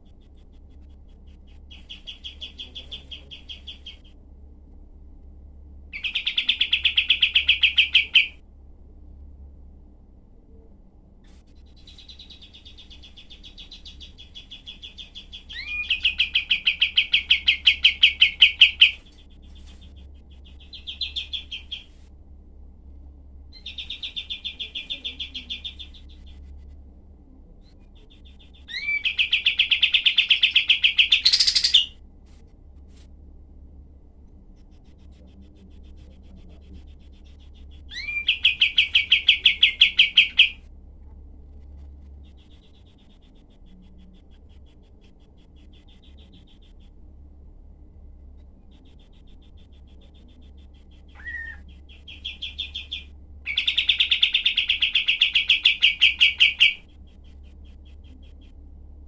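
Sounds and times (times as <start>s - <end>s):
bird rattling trills: 11.7s - 22.0s, 28.0s - 32.0s, 34.6s - 40.6s, 48.7s - 58.5s.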